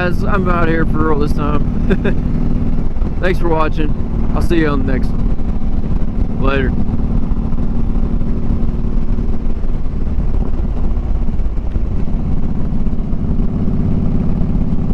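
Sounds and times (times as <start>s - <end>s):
motorcycle engine running: 0.0s - 14.9s.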